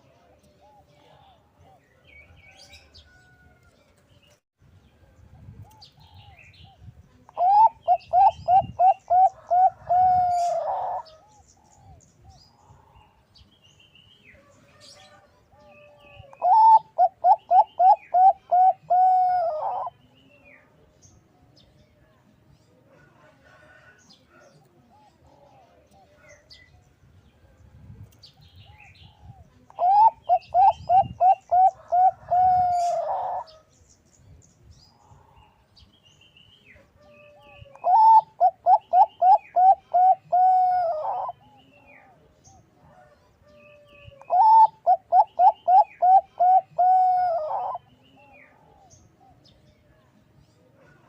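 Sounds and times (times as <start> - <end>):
dove cooing: 7.4 - 12.0, 15.0 - 20.0, 28.6 - 33.6, 37.0 - 42.2, 42.9 - 49.4.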